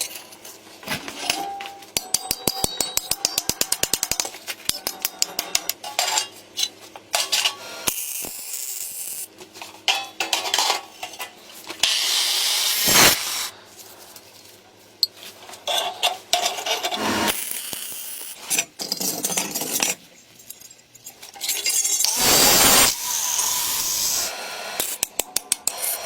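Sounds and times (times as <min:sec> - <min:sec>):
tools scraping and rubbing: 0:02.4 - 0:07.6, 0:13.8 - 0:17.4.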